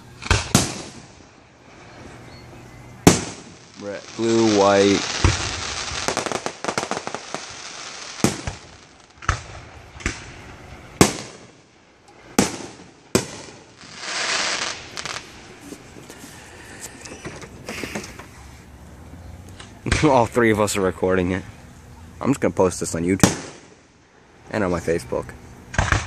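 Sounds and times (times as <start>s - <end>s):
sharp fireworks bangs: 0.0s - 2.3s, 2.9s - 18.2s, 19.8s - 20.4s, 23.1s - 24.0s, 25.7s - 26.0s
fireworks crackling: 0.0s - 21.8s, 22.4s - 26.0s
rushing hiss: 3.1s - 9.7s, 11.0s - 18.8s.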